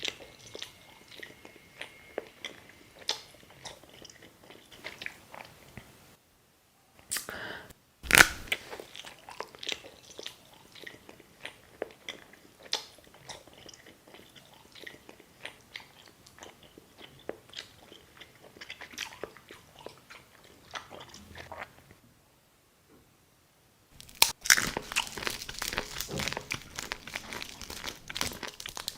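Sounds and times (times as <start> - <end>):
chewing with crunches: 0.0 - 6.0, 8.1 - 22.0, 24.0 - 28.9
crunching bite: 8.0 - 21.7, 24.0 - 28.9.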